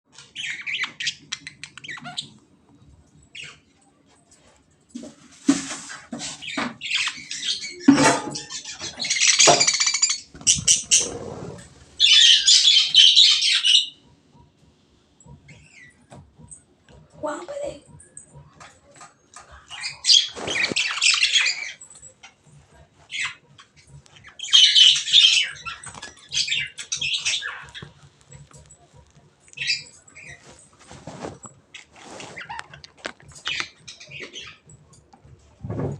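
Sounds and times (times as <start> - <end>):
parrots chattering and squawking: 0.1 - 2.5, 3.3 - 3.7, 5.5 - 14.5, 15.3 - 16.5, 17.2 - 35.0
lovebirds squawking: 6.4 - 14.0, 24.2 - 28.0.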